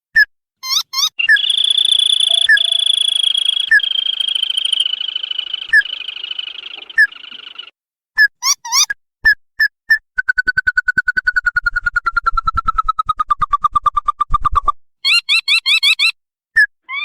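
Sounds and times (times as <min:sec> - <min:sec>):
bird trilling: 0:00.6 - 0:07.7.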